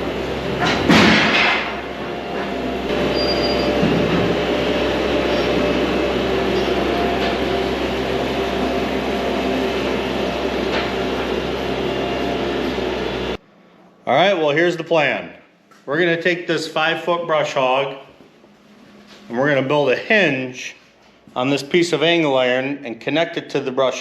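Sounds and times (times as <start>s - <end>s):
engine running steadily: 0.0s - 13.4s.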